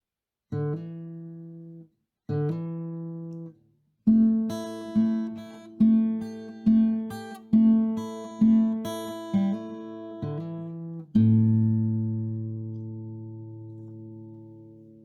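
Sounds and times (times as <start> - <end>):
acoustic guitar strumming chords: 4.1 - 15.0.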